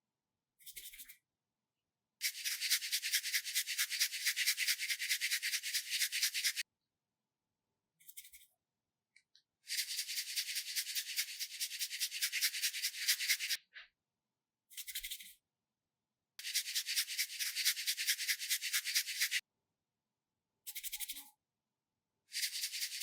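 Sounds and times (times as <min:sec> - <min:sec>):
fast rubbing strokes: 0:02.2 - 0:06.6, 0:09.7 - 0:13.6, 0:16.4 - 0:19.4, 0:22.4 - 0:23.0.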